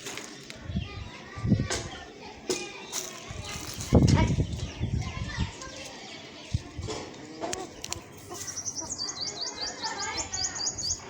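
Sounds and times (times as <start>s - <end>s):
small bird chirping: 7.5s - 11.0s.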